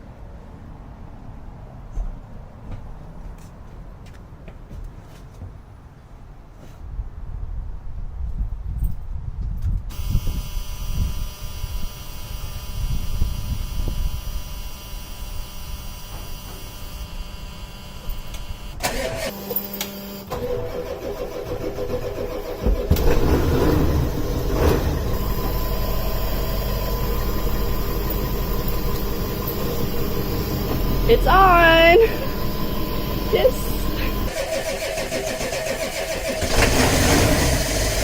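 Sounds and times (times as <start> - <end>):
diesel engine running: 14.1 - 38.0
starter motor cranking: 18.8 - 38.0.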